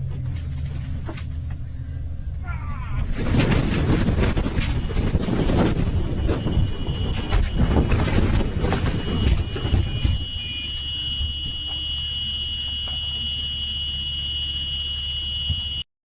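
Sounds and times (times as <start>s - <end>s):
low vehicle rumble: 0.0s - 15.8s
clattering: 3.0s - 11.8s
high-pitched electronic alarm tone: 5.9s - 15.9s.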